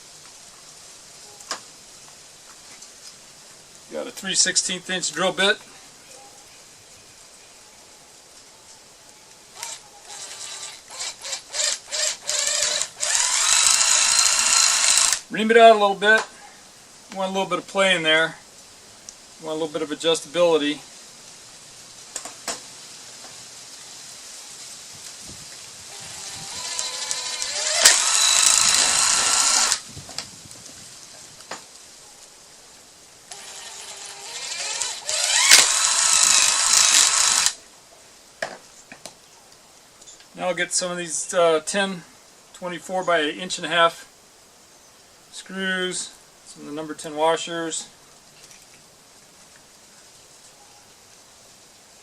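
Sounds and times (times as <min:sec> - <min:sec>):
electric drill drilling plastic: 0:09.6 - 0:15.2, 0:25.9 - 0:29.8, 0:33.3 - 0:37.6.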